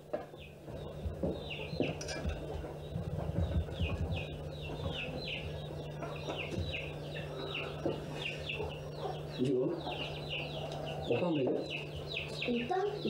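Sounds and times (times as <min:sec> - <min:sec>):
birds chirping: 0:00.0 - 0:13.0
steady low hum: 0:00.0 - 0:13.0.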